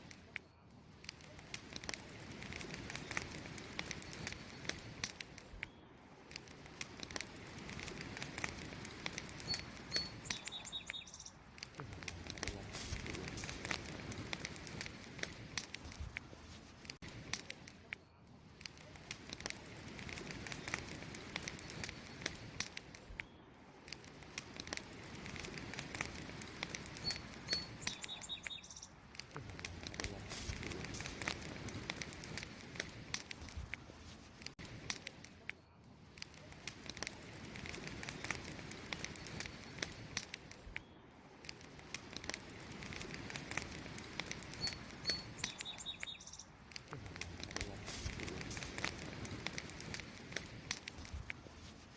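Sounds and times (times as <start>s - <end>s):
campfire crackling and popping: 0.0s - 51.9s
bird chirp: 9.4s - 11.4s, 27.0s - 29.0s, 44.5s - 46.6s.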